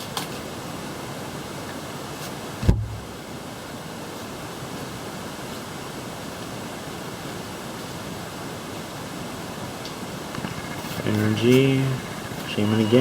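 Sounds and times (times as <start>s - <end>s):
steady hiss: 9.8s - 13.0s.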